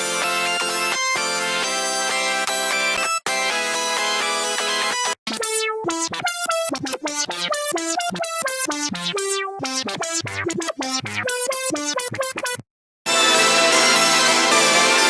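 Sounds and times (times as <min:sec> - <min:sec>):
synthesizer melody of short notes: 0:05.4 - 0:12.6.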